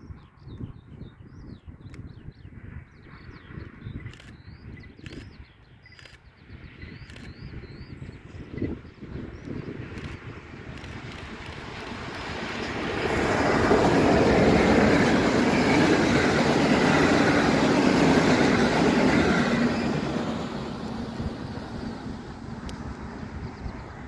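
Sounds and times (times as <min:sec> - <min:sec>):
passenger train passing: 0:08.0 - 0:24.0.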